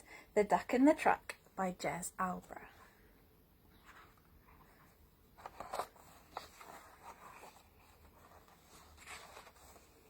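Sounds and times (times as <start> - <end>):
paper pages rustling: 3.8 - 10.0.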